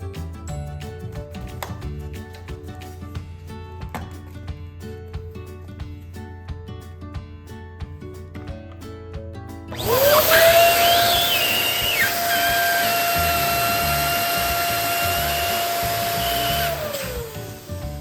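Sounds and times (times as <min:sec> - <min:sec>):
electric balloon pump whining: 0:09.7 - 0:18.0.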